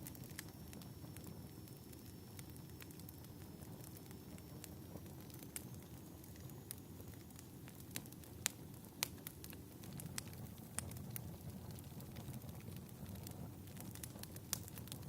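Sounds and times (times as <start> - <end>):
fireplace crackling: 0.0 - 15.0
sharp pops of burning wood: 1.8 - 15.0.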